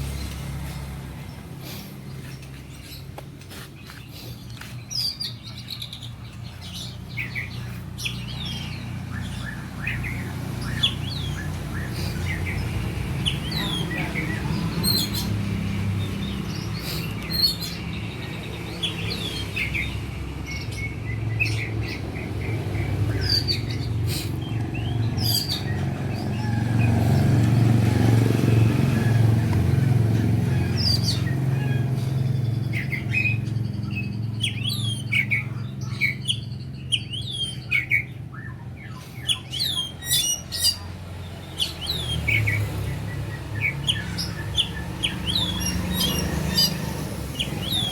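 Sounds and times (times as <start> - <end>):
songbirds chirping: 0.0 - 47.9.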